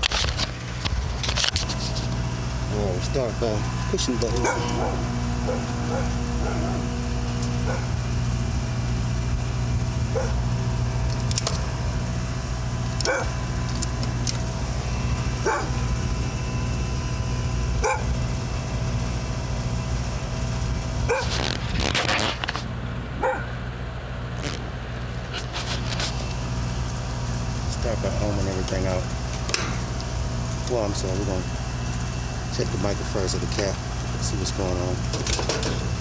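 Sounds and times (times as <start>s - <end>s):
steady low hum: 0.0s - 36.0s
dog barking: 4.4s - 6.9s, 7.6s - 8.0s, 10.1s - 10.4s, 13.0s - 13.4s, 15.4s - 15.8s, 17.8s - 18.1s, 21.1s - 21.4s, 23.2s - 23.6s.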